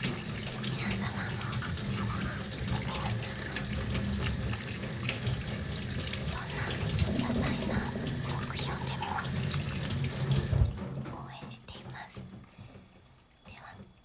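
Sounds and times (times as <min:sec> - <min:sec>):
running water flowing: 0:00.0 - 0:11.0.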